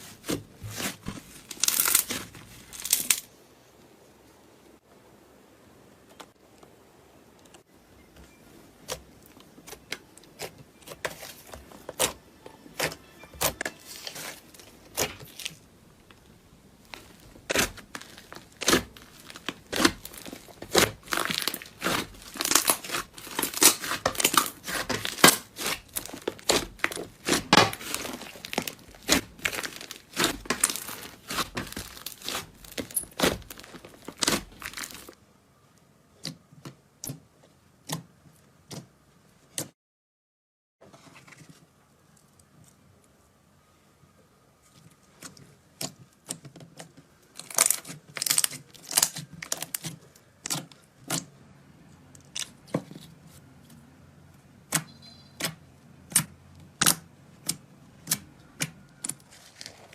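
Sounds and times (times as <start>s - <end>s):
slime squeezed by hand crackling: 17.0s - 35.1s.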